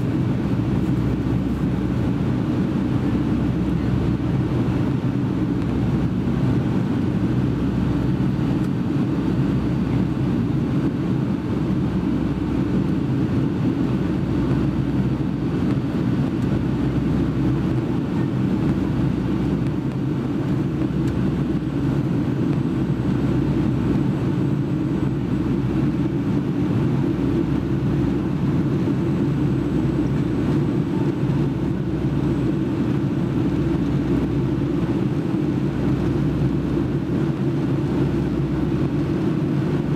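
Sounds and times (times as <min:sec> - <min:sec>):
jet engines droning: 0:00.0 - 0:39.9.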